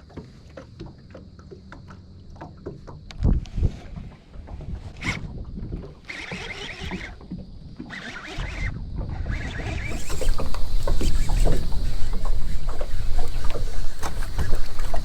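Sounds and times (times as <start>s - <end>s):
water noise: 0.0s - 15.0s
wind on microphone: 3.1s - 15.0s
short hissing bursts: 9.9s - 15.0s.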